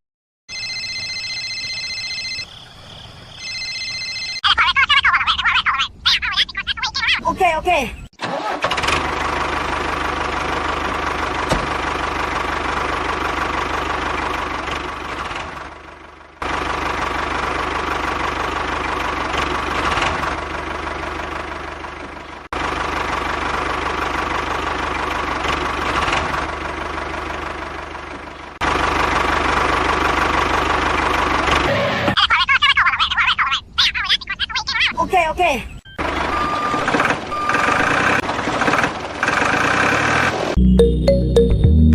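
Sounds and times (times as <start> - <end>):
small tractor motor whining: 8.2 - 32.2, 35.9 - 40.6.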